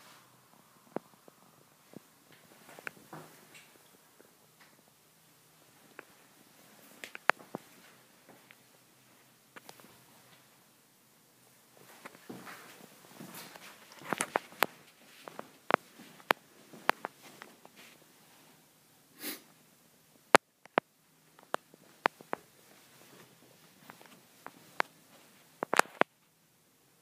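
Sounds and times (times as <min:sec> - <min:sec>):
person sniffing: 0:19.2 - 0:19.5
sharp clicks and taps: 0:20.3 - 0:22.4.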